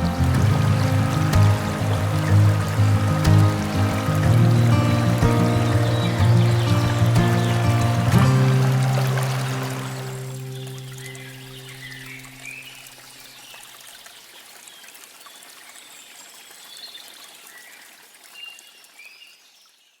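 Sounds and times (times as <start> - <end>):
background music: 0.0 - 12.2
bird chirps: 0.0 - 12.8
stream trickling: 0.0 - 20.0.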